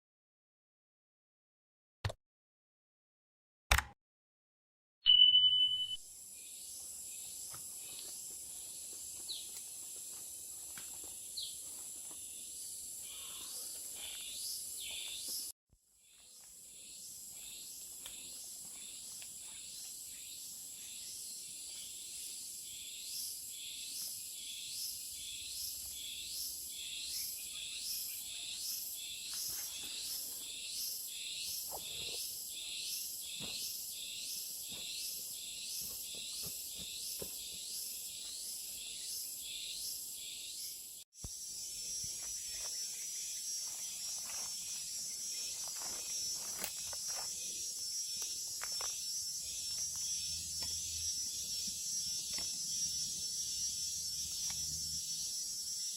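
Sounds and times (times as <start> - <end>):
bird chirps: 5.1 - 6.0
high-pitched insect chorus: 6.1 - 55.9
pulsing insect call: 16.6 - 55.9.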